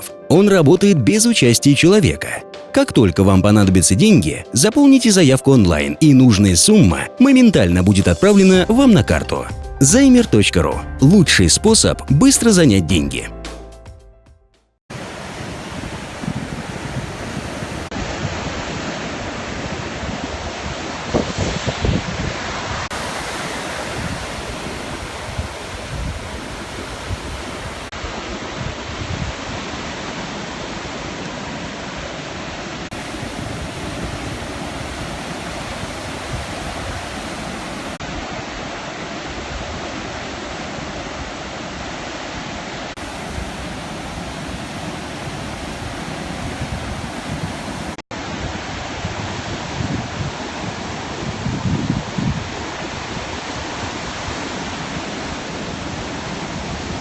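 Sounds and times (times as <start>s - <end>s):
sea surf breaking: 14.9s - 28.7s, 32.7s - 41.0s, 42.8s - 49.8s.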